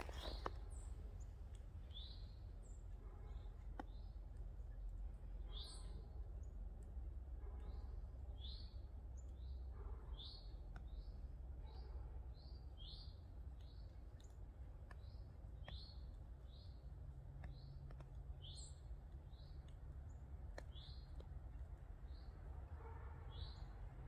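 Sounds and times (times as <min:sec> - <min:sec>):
small birds chirping: 0:00.0 - 0:24.0
faint clicks: 0:13.4 - 0:21.9.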